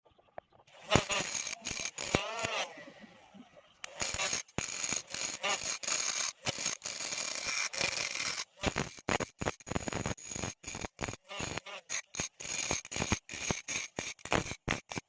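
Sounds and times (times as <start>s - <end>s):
scraping and rubbing: 0.5s - 15.0s.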